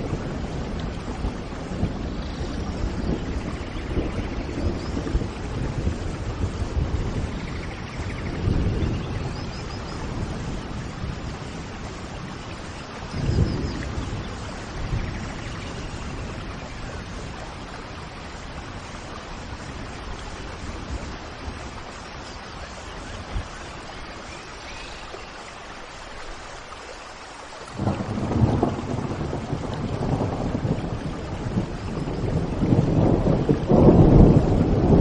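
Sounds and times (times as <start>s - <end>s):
thunder rumbling: 0.0s - 24.3s, 27.7s - 35.0s
steady rain falling: 0.0s - 35.0s.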